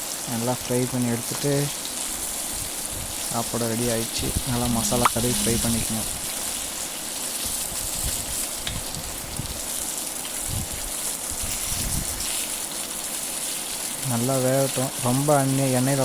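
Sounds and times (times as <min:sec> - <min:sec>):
fish sizzling in oil: 0:00.0 - 0:16.0
oil popping: 0:04.2 - 0:14.1.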